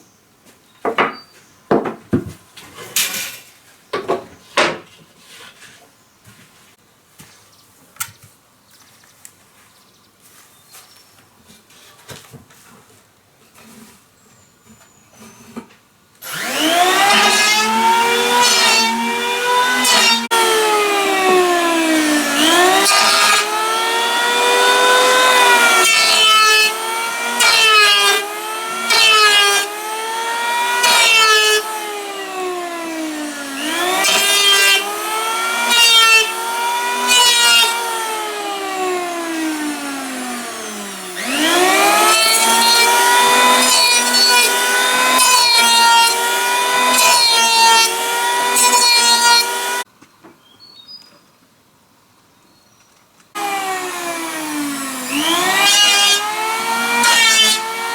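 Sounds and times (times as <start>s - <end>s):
chainsaw cutting wood: 16.2s - 49.9s, 53.4s - 57.9s.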